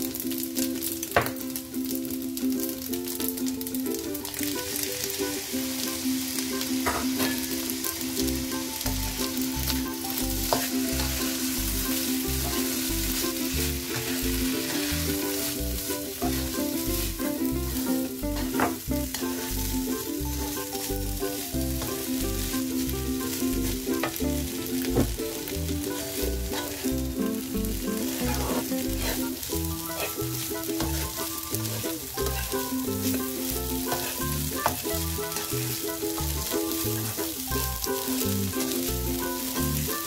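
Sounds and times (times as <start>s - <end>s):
rice sizzling in a wok: 0.0s - 40.0s
background music with a beat: 5.9s - 40.0s
spatula scraping a pan: 10.4s - 20.9s, 25.9s - 39.4s.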